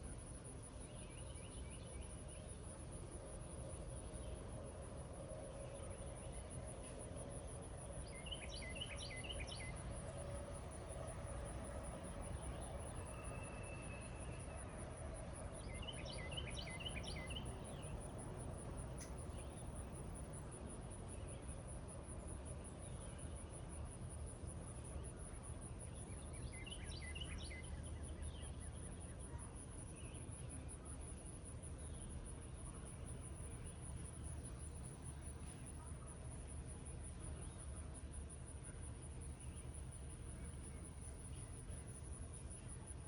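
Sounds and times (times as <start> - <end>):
songbird singing: 0.0 - 36.2, 37.1 - 43.0
high insect trill: 0.1 - 28.7.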